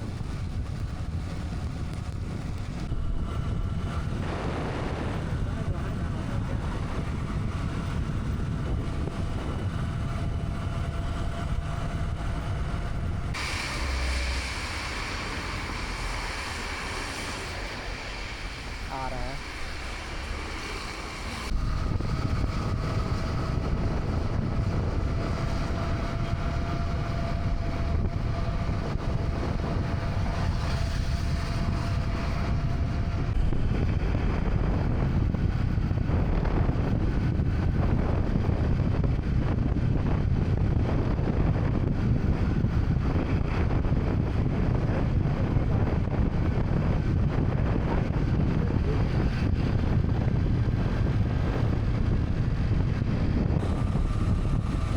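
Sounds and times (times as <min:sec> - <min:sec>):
motorcycle engine running: 0:00.0 - 0:18.6
wind rushing over microphone: 0:00.0 - 0:54.9.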